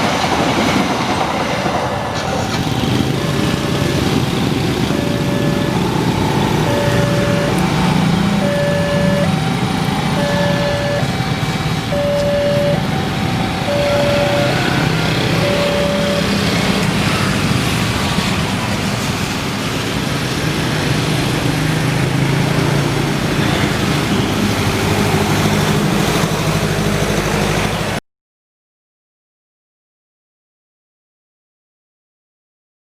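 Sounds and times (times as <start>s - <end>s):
road traffic noise: 0.0s - 28.0s
level crossing alarm beeping: 3.0s - 17.0s.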